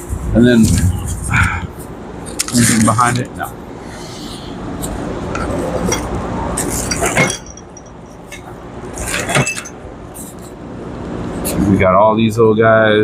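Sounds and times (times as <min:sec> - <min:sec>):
small metal parts clinking: 0:06.7 - 0:09.8.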